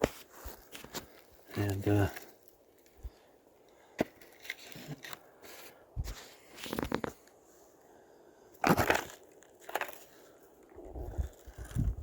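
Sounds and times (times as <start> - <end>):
dry crunching and crackling: 0.0 - 5.4, 8.6 - 12.0.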